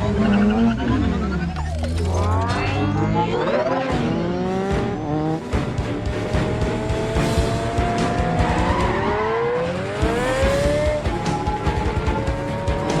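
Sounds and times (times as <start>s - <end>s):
action score music: 0.0s - 13.0s
sports car engine revving: 3.9s - 13.0s.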